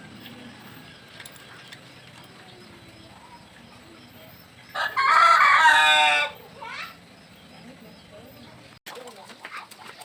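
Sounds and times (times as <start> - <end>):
rooster crowing: 4.7 - 6.4.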